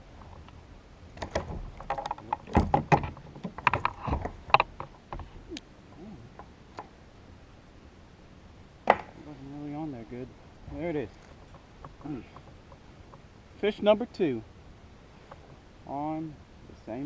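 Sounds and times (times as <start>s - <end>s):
knocks and clatter on a kayak: 1.1s - 6.9s, 8.8s - 9.2s, 10.7s - 13.3s, 15.2s - 15.6s.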